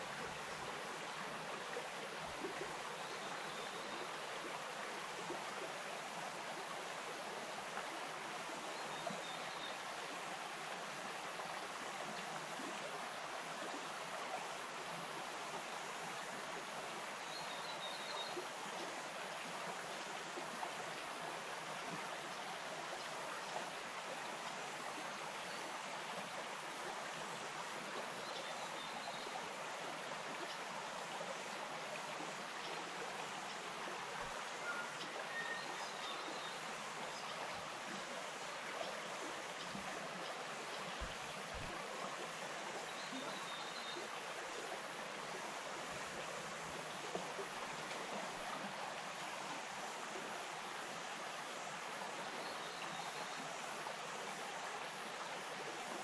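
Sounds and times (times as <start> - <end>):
stream flowing over stones: 0.0 - 56.0.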